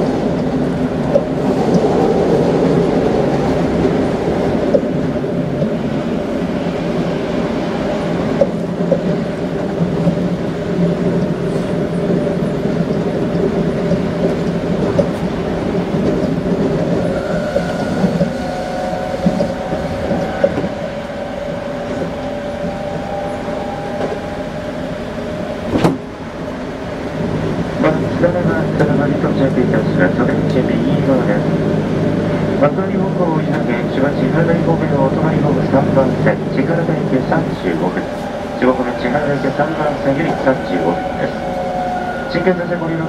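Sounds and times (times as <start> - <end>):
rumble of train wheels on rail: 0.0 - 43.0
traction motor whine: 16.8 - 27.2.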